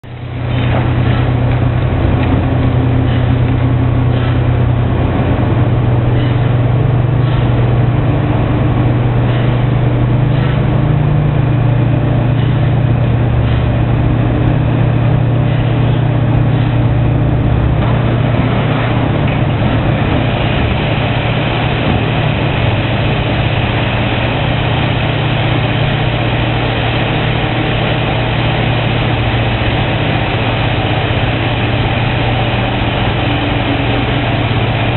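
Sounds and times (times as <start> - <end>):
diesel excavator engine running: 0.0 - 34.9.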